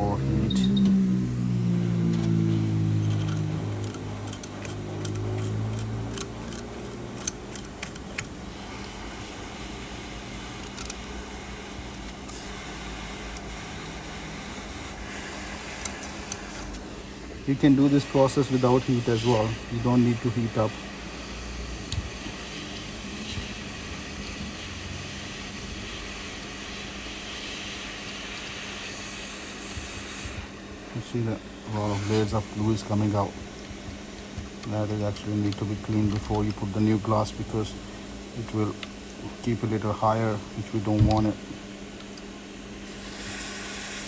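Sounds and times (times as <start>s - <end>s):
blade cutting adhesive clicks: 3.0s - 9.0s
heat gun blowing: 12.3s - 30.7s, 31.4s - 35.6s, 42.8s - 44.0s.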